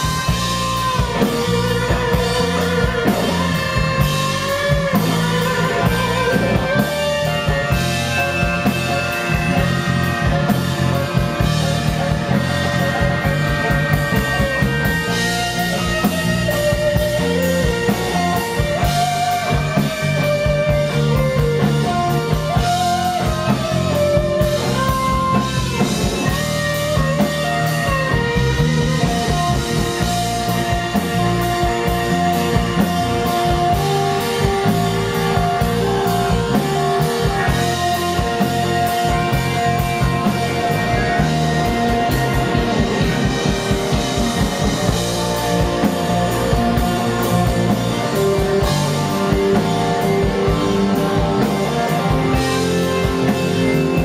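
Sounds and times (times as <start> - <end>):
blues-rock band playing: 0.0 - 54.0
electric guitar lead: 0.0 - 54.0.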